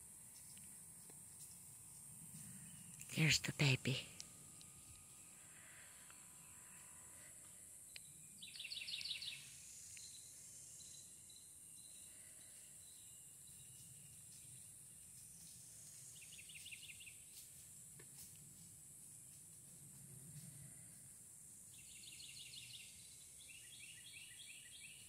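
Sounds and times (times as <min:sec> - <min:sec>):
high insect buzz: 0:00.0 - 0:19.5.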